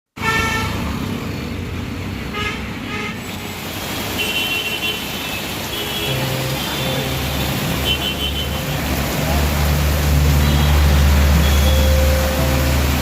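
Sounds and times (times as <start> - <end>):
road traffic: 0.1 - 13.0
vehicle horns honking: 0.2 - 0.8, 4.2 - 9.1, 10.0 - 13.0.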